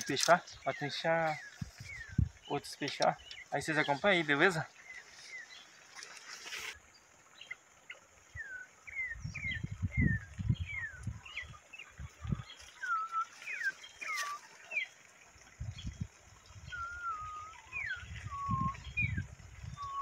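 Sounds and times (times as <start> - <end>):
low rumbling microphone thumps: 1.6 - 2.4
birds whistling: 12.3 - 14.9, 16.6 - 20.0.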